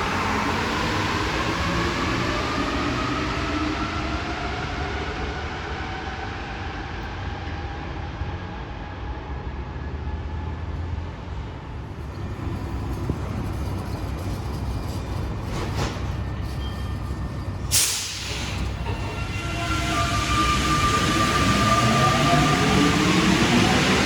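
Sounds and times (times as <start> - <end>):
train rumble: 0.0 - 24.0
train motor whine: 11.7 - 24.0
air hiss: 17.6 - 20.7.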